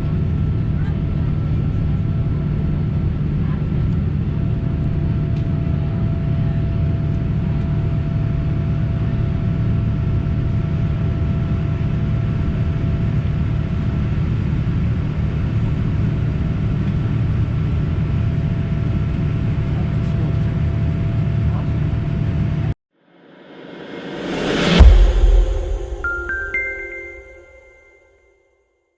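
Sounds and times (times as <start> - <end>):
jet engine drone and airflow: 23.2 - 27.0.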